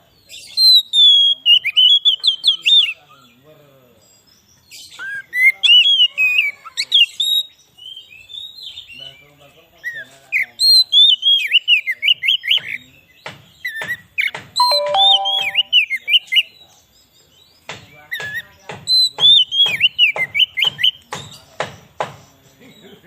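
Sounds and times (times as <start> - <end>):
bird singing whistles and clicks: 14.6 - 15.8.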